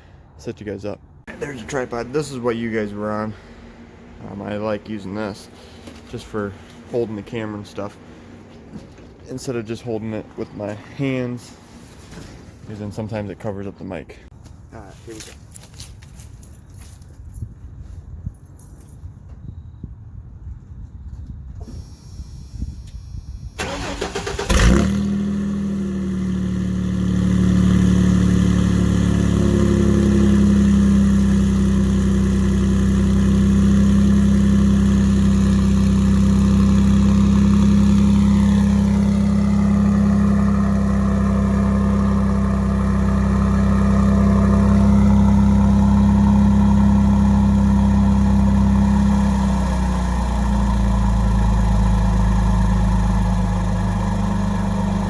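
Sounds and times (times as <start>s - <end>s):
truck engine cranking and idling: 0.0s - 11.8s, 22.9s - 55.0s.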